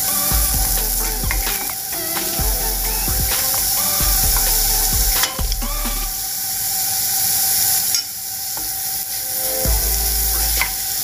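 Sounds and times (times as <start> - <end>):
onion sizzling in oil: 6.1 - 11.0.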